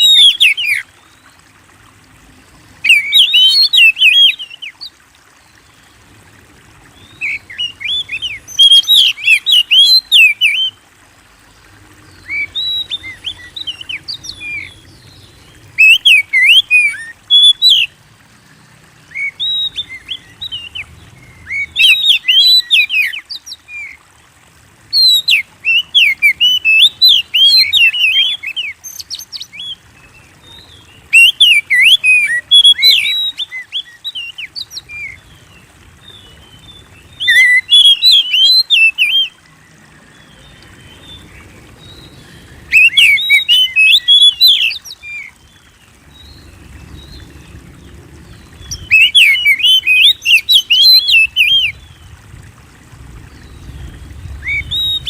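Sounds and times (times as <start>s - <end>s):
bird singing whistles and chirps: 0.0s - 0.8s, 2.8s - 4.7s, 7.0s - 10.8s, 12.2s - 15.0s, 15.8s - 17.9s, 19.1s - 24.0s, 24.9s - 29.8s, 30.5s - 35.2s, 37.1s - 39.3s, 41.8s - 45.6s, 48.4s - 52.0s, 53.3s - 55.0s.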